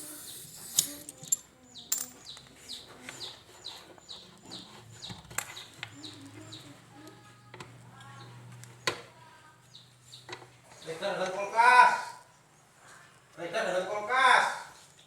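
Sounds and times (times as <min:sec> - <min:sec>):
bird chirping: 0:00.0 - 0:06.8.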